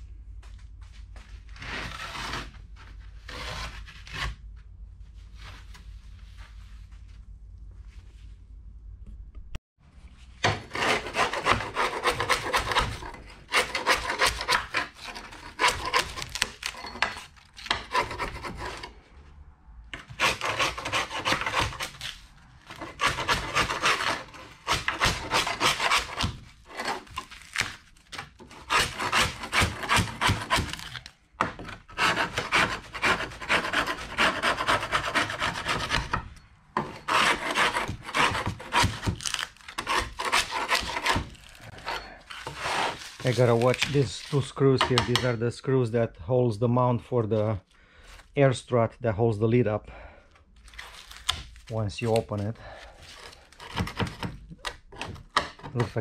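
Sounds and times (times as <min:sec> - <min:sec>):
hand scraper rasping on metal: 0:10.4 - 0:19.0, 0:20.0 - 0:22.0, 0:22.7 - 0:27.3, 0:28.4 - 0:30.9, 0:31.9 - 0:36.2, 0:36.8 - 0:43.5.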